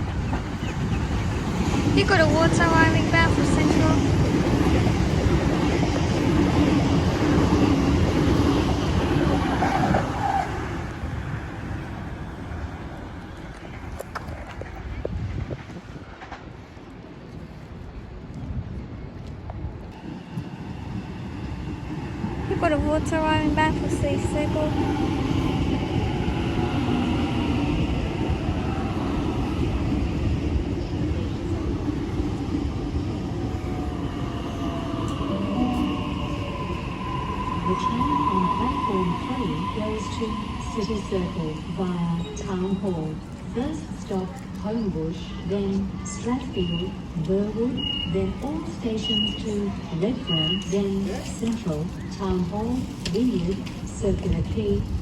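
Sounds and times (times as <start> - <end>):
train wheels and motors rumbling: 0.0 - 55.0
train brake squeal: 47.8 - 48.2, 49.0 - 49.6.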